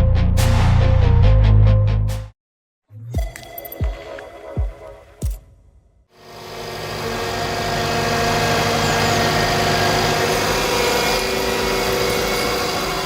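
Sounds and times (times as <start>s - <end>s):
heavy machine engine running: 6.2s - 13.0s.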